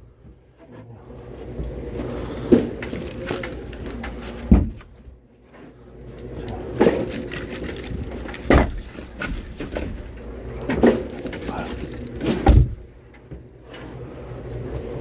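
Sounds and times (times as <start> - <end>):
low steady rumble: 0.0 - 15.0
dull knocks: 1.6 - 5.1, 6.7 - 13.5.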